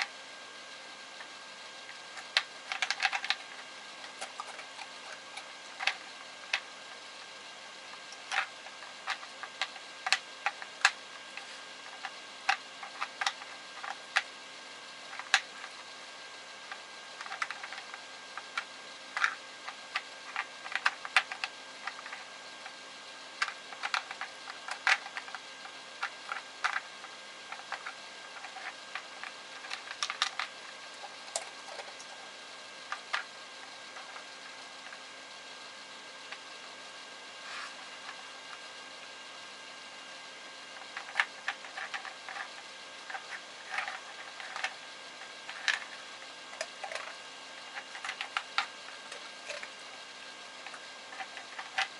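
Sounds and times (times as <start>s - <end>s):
plastic puzzle toy clicking and tapping: 2.2s - 3.4s, 8.2s - 11.0s, 15.1s - 15.5s, 17.2s - 22.2s, 23.4s - 25.4s, 26.0s - 26.9s, 27.5s - 30.5s, 43.1s - 44.7s, 50.7s - 51.9s.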